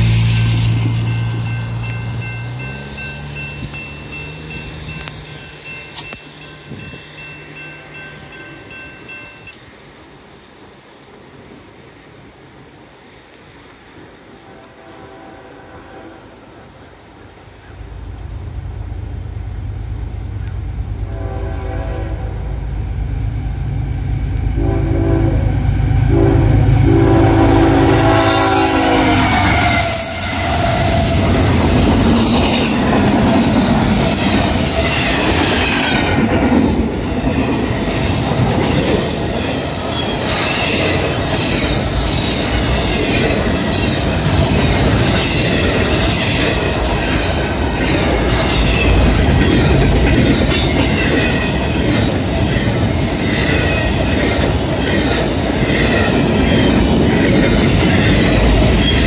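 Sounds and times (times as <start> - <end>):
diesel locomotives rumbling: 0.0 - 59.0
train horn blasts: 14.4 - 16.7, 21.0 - 22.7, 24.4 - 31.6
high wheel squeals: 27.4 - 36.0.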